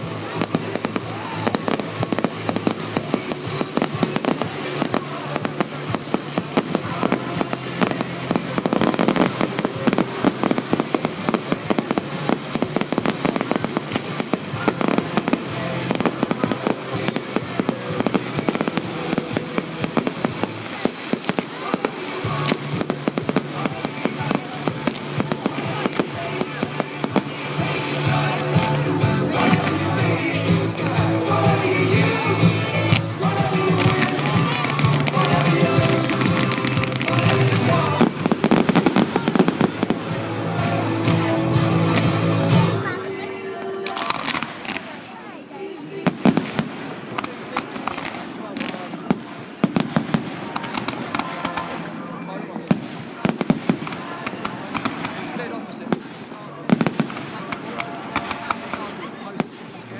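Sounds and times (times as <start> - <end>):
music through sound system: 0.0 - 44.6
fireworks bangs and crackles: 0.0 - 59.9.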